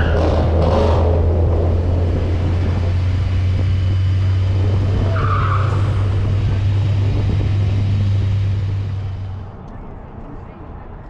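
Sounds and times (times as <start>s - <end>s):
tire squeal: 0.0s - 0.8s, 2.2s - 9.4s
car engine droning: 0.0s - 10.9s.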